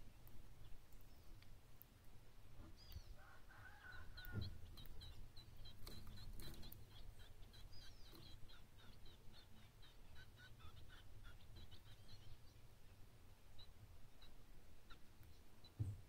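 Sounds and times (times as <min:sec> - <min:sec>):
small bird chip notes: 0:02.7 - 0:12.6
soft thump: 0:15.8 - 0:16.0.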